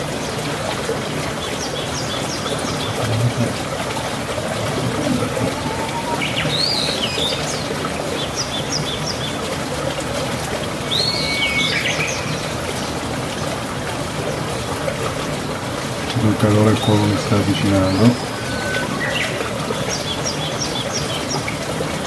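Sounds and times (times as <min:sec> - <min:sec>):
songbird chirping: 0:04.7 - 0:07.7, 0:16.4 - 0:21.3.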